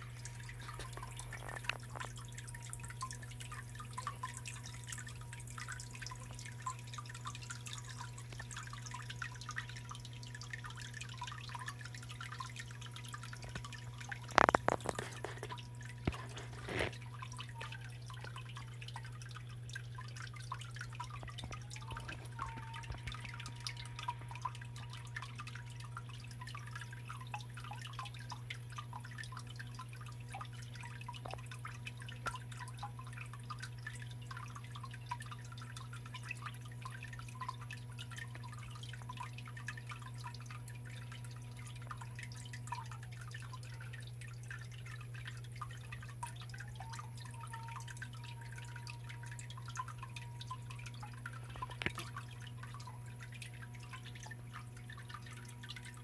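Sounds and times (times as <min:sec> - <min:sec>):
steady low hum: 0:00.0 - 0:28.3
water trickling and splashing: 0:00.0 - 0:56.0.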